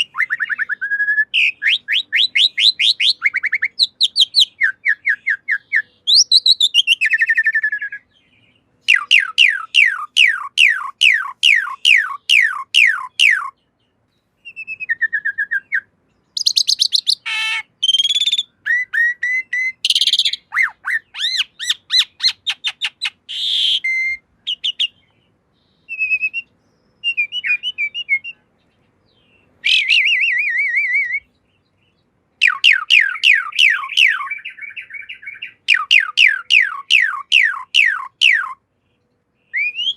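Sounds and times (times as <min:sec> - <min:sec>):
bird singing downward whistles: 0:00.0 - 0:08.1, 0:08.8 - 0:13.6, 0:14.4 - 0:25.1, 0:25.7 - 0:28.5, 0:29.1 - 0:31.4, 0:32.4 - 0:38.6, 0:39.5 - 0:39.9
bird chirps and harsh notes: 0:08.8 - 0:31.8, 0:32.4 - 0:38.6.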